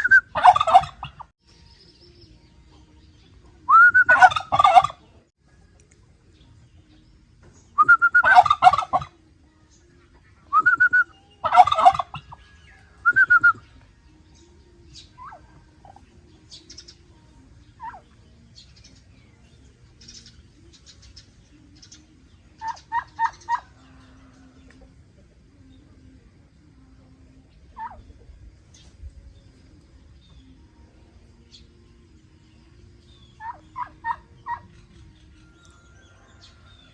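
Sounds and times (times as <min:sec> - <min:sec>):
turkeys gobbling: 0:00.0 - 0:01.3, 0:03.7 - 0:05.2, 0:07.8 - 0:09.2, 0:10.1 - 0:13.8, 0:15.0 - 0:16.1, 0:17.8 - 0:18.2, 0:21.8 - 0:24.8, 0:27.7 - 0:28.3, 0:33.2 - 0:35.1.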